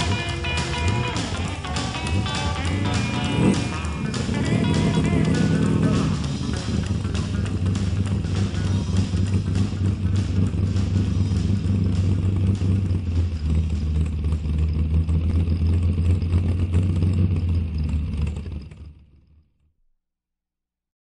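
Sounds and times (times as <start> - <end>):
car engine running: 0.0 - 19.5.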